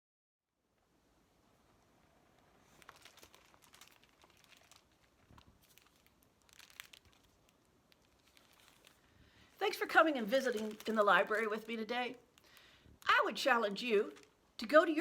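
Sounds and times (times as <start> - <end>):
faint rustling: 2.0 - 13.1.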